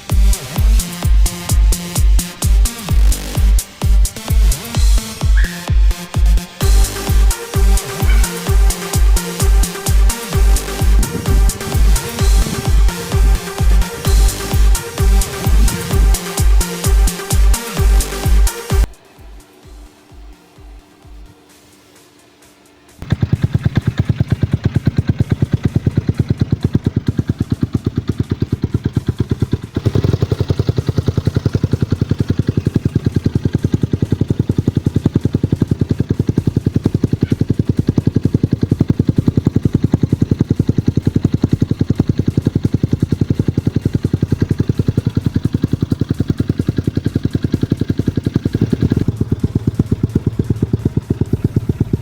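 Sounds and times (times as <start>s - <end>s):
motorcycle engine idling: 0.0s - 52.0s.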